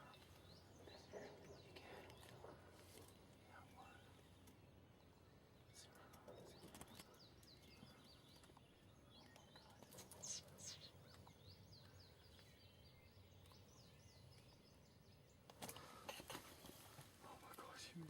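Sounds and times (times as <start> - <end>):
birds chirping: 0.0 - 18.0
soft rustles: 15.6 - 17.7.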